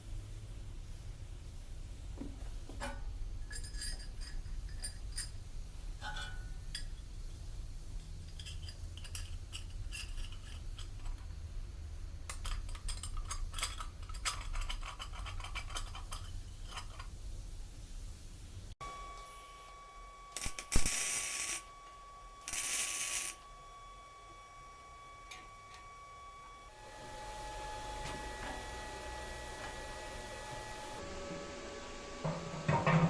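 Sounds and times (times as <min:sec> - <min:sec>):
steady low hum: 0:00.0 - 0:33.0
light metallic clinks and taps: 0:02.8 - 0:05.4.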